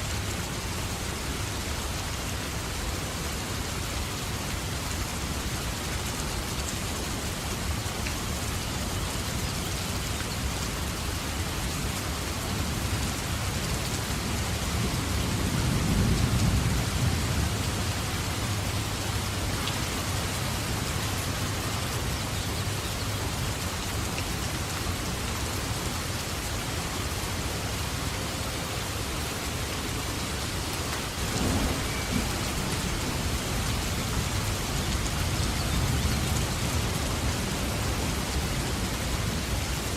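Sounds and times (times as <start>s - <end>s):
steady rain falling: 0.0s - 39.9s
low thunder rumble: 31.2s - 39.4s.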